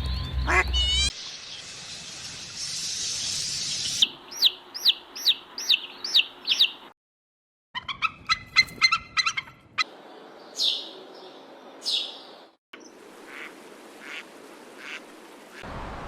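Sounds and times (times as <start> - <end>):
bird calls: 0.0 - 1.7, 2.5 - 6.9, 7.8 - 14.2.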